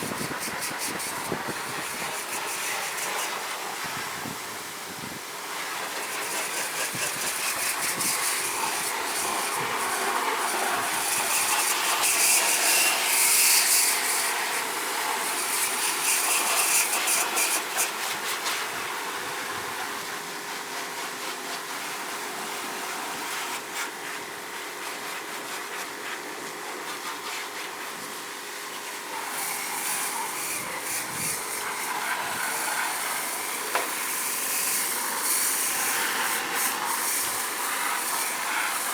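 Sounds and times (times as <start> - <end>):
pressure washer spraying water: 0.0 - 28.2, 28.8 - 38.9.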